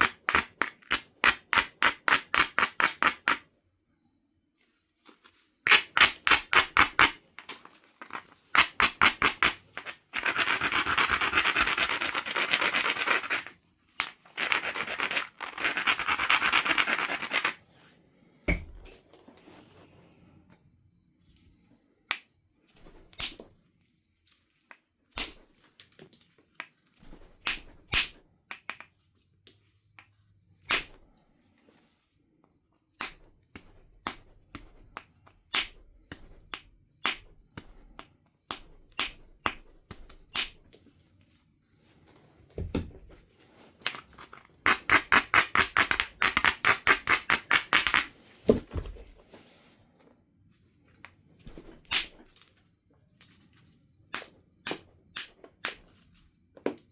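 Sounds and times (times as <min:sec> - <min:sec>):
tool tapping on stone: 0:00.0 - 0:03.4, 0:18.5 - 0:19.0, 0:33.0 - 0:40.6.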